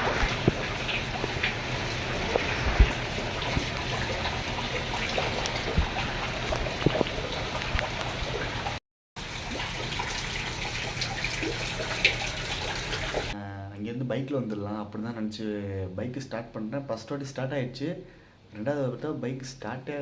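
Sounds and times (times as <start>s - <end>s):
floodwater flowing: 0.0s - 13.4s
small splashes: 0.0s - 13.4s.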